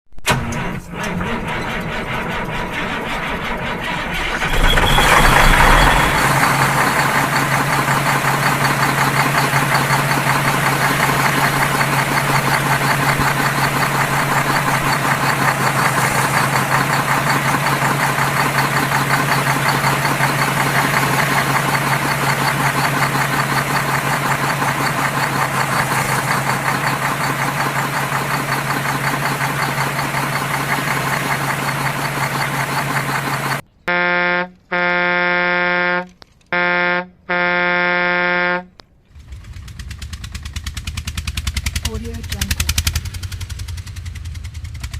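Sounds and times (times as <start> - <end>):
engine starting and idling: 0.2 - 33.7, 39.1 - 44.9
rapid knocking pulse: 2.0 - 33.6.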